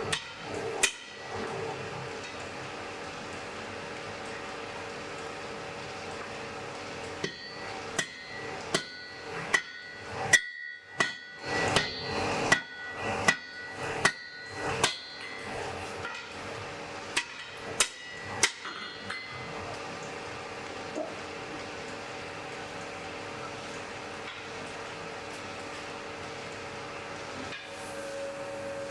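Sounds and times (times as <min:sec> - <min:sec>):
steady background hum: 0:00.0 - 0:28.9
hammer striking anvil: 0:00.1 - 0:01.2, 0:07.2 - 0:16.3, 0:17.2 - 0:19.4.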